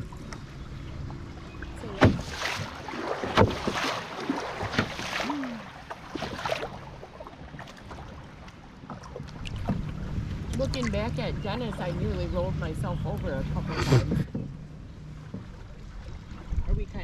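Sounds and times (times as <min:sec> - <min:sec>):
paddle strokes in water: 0:00.0 - 0:17.0.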